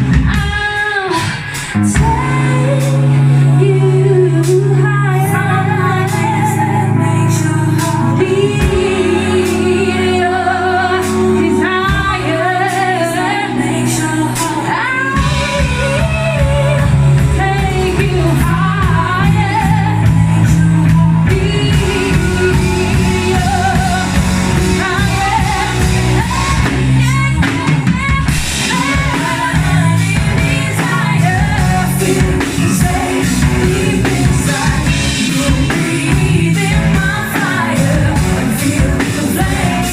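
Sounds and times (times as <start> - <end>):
live band playing: 0.0 - 39.9
woman singing: 0.0 - 39.9.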